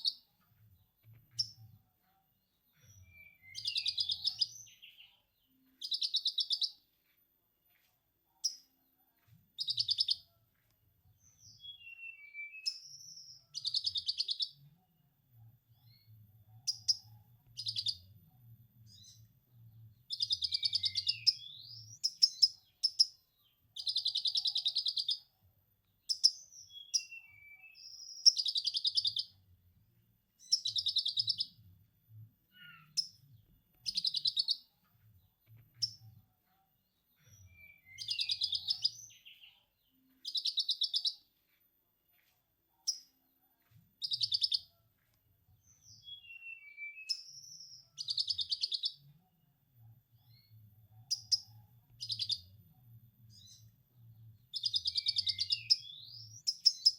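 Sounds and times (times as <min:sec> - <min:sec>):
bird high chirps: 0:00.0 - 0:00.4, 0:02.7 - 0:06.9, 0:09.6 - 0:10.4, 0:11.2 - 0:14.7, 0:15.8 - 0:18.1, 0:20.0 - 0:25.3, 0:25.9 - 0:29.4, 0:30.4 - 0:31.6, 0:32.5 - 0:34.8, 0:35.5 - 0:36.2, 0:36.9 - 0:41.3, 0:44.0 - 0:44.8, 0:45.6 - 0:49.1, 0:50.2 - 0:52.6, 0:54.4 - 0:56.9.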